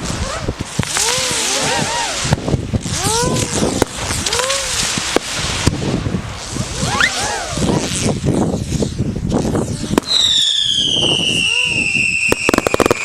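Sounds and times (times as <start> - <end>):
fireworks bangs: 0.0 - 8.1, 9.8 - 13.0
fireworks crackling hiss: 0.0 - 13.0
fireworks whistles: 9.9 - 13.0.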